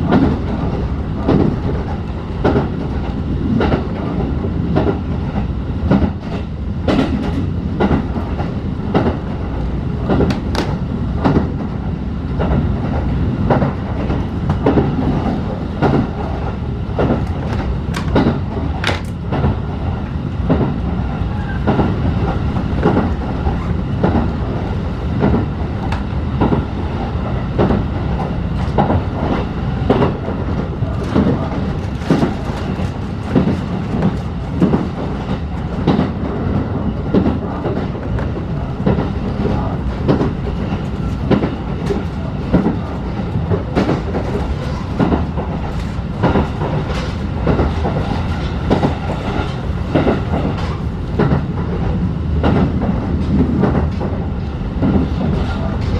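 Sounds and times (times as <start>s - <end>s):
train carriage rumble: 0.0s - 55.9s
wheels clacking over rail joints: 12.4s - 19.6s, 27.6s - 55.9s.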